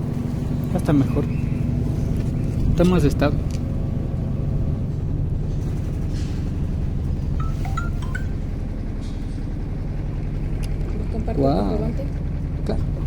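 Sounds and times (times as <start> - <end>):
short high chirps: 7.4 - 8.6.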